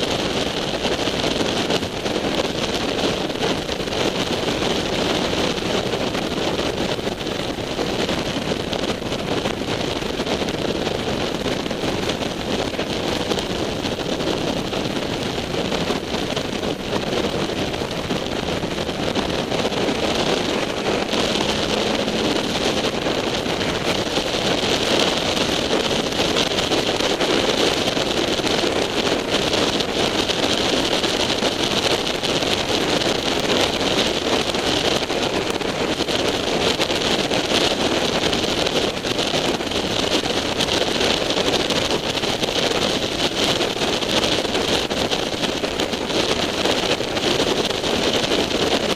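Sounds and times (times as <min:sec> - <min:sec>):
road noise: 0:00.0 - 0:48.9
wind buffeting microphone: 0:00.0 - 0:48.9
motorcycle engine: 0:12.7 - 0:30.1.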